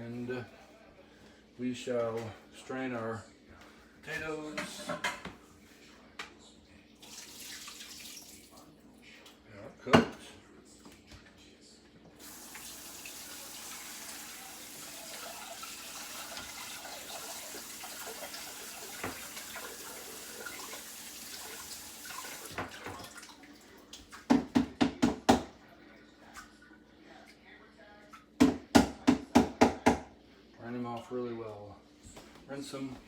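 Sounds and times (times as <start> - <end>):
water pouring into sink: 7.0 - 8.7, 12.2 - 24.2.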